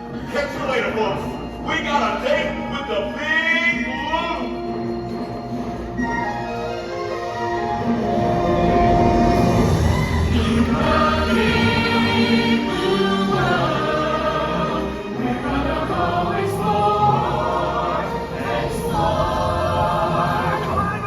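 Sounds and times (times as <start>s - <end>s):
choir singing over band: 8.0s - 21.0s.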